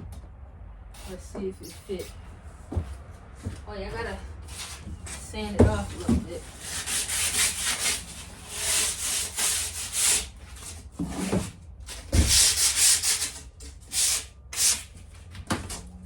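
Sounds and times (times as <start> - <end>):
sanding wood by hand: 4.4 - 11.5, 12.1 - 14.9.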